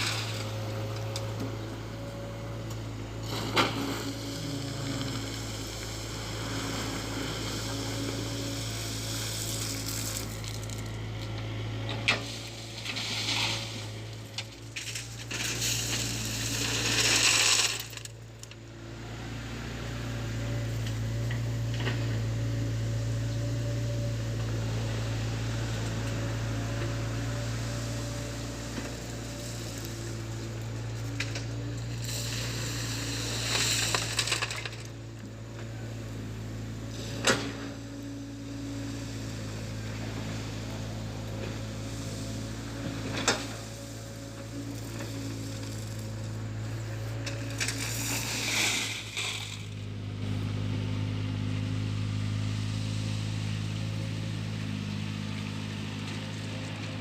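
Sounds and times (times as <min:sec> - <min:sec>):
gravel clattering in bucket: 0:00.0 - 0:01.0, 0:09.1 - 0:11.0, 0:12.1 - 0:18.2, 0:28.3 - 0:34.9, 0:43.0 - 0:46.4, 0:47.1 - 0:49.8
diesel engine running: 0:00.0 - 0:57.0.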